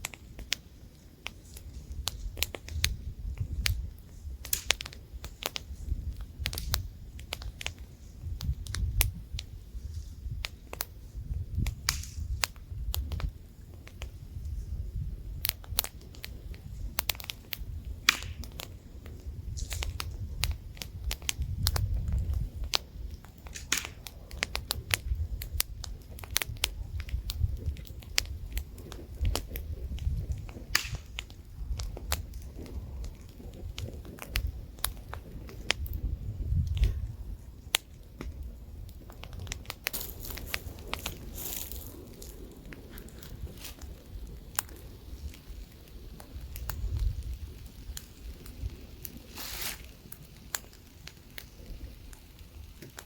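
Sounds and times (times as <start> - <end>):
campfire crackling and popping: 0.0 - 53.0
low wind rumble: 0.0 - 53.0
bright hiss: 39.5 - 53.0.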